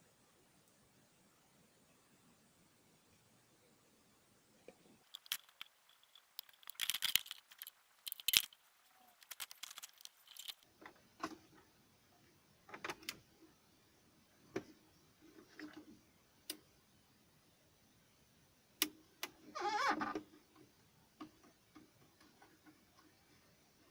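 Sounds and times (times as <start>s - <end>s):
small hard objects clicking and rattling: 5.0s - 10.7s.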